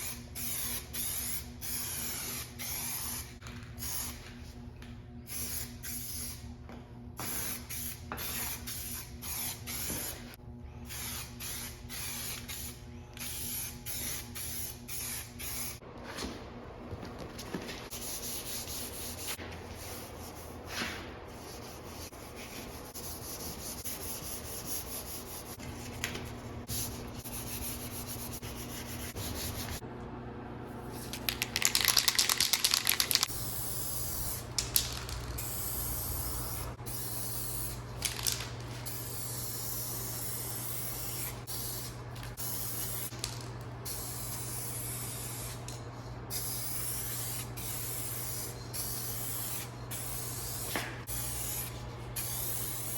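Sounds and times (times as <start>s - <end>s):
spray paint hissing: 0.0s - 4.2s, 5.3s - 6.4s, 7.2s - 15.8s, 26.6s - 29.8s, 30.9s - 52.9s.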